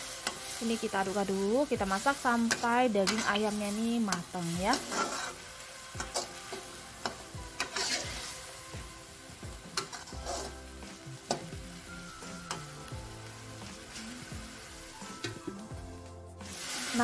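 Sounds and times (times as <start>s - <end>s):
chicken sizzling in a wok: 0.0s - 17.0s
spatula scraping pan: 2.4s - 8.5s, 9.8s - 10.7s.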